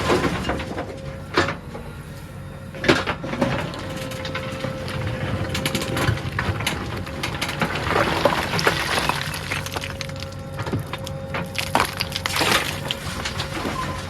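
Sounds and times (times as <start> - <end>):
diesel engine whining: 0.0 - 14.0
bucket crushing earth and stones: 3.3 - 14.0.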